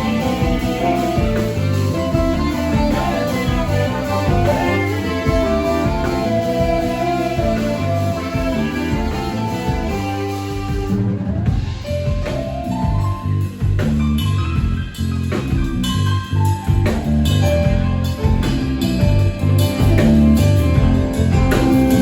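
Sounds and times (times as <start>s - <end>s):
steady beat: 0.0s - 16.1s
bass: 0.0s - 22.0s
guitar: 0.0s - 22.0s
live band playing instrumental: 0.0s - 22.0s.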